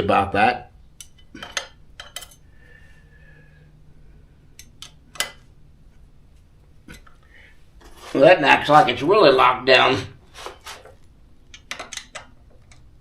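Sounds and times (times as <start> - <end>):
metallic clinks of tools: 1.0 - 2.4.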